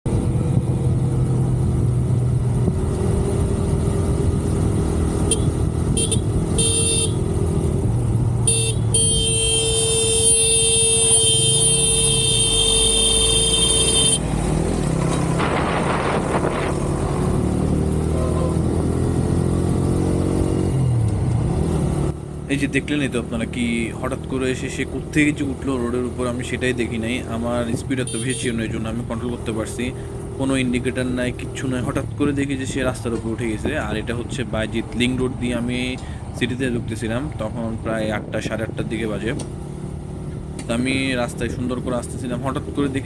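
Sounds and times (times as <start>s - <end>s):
motorcycle engine: 0.1s - 26.7s
road noise: 0.1s - 43.0s
vehicle horn honking: 5.3s - 7.3s, 8.4s - 14.2s, 28.0s - 28.6s.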